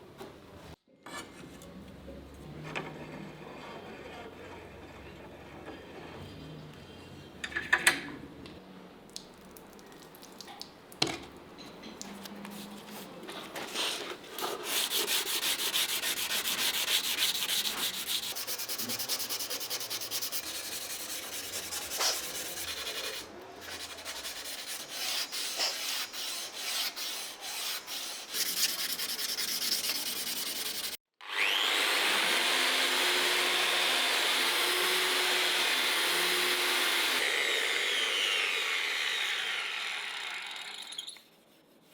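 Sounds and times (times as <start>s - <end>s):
sanding strokes: 13.7s - 31.0s, 32.9s - 41.9s
power tool whirring: 31.2s - 41.2s.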